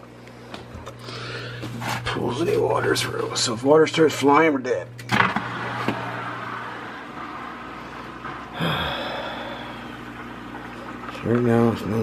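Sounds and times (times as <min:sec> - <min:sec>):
filter pump humming: 0:00.0 - 0:12.0
water gurgling: 0:05.6 - 0:12.0.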